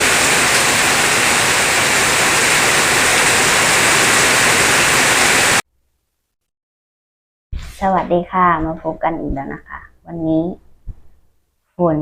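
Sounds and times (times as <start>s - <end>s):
heavy rain pouring: 0.0s - 5.6s.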